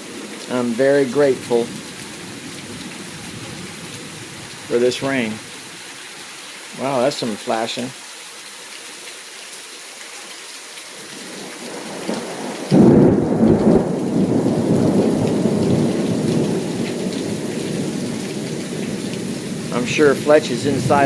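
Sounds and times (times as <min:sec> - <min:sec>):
heavy rain: 0:00.0 - 0:21.0
thunderclap with long rumble: 0:12.7 - 0:21.0.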